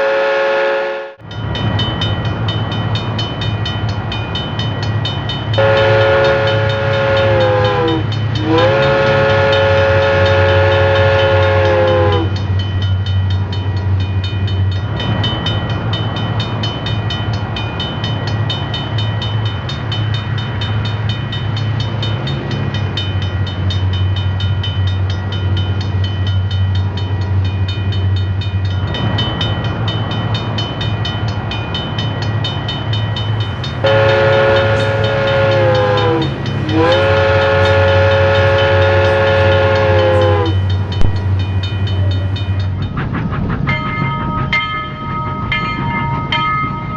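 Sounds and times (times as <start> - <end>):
model train horn blasts: 0.0 - 1.2, 5.6 - 12.4, 33.8 - 41.2
model train running with clicking: 2.0 - 46.9.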